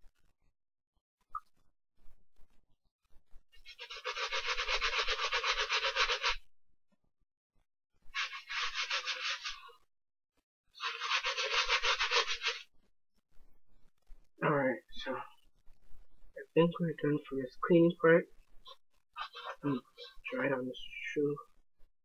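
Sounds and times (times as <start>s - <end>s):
brush scrubbing a sneaker: 3.6s - 6.4s, 8.2s - 9.7s, 10.8s - 12.6s.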